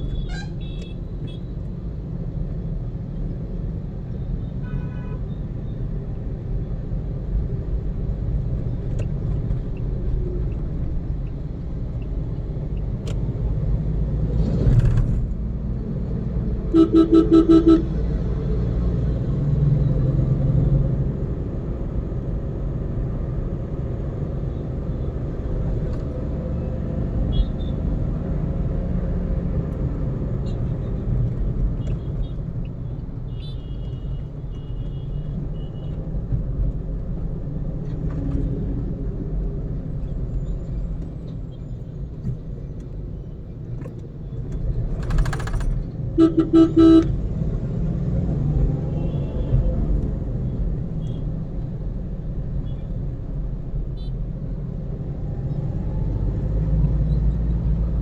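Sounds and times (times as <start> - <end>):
car engine and road rumble: 0.0 - 58.0
vehicle horn short honks: 4.6 - 5.3, 16.7 - 17.9, 46.2 - 47.1.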